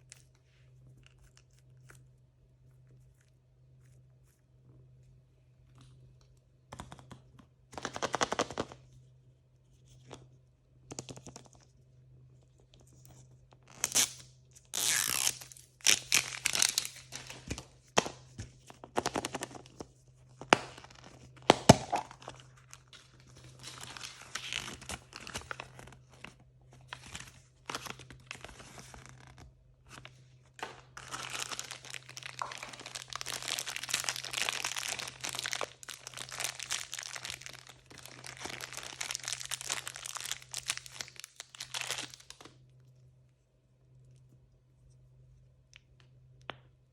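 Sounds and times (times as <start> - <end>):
faint low hum: 0.0 - 46.9
packaging being torn open: 13.7 - 17.6, 30.6 - 42.5.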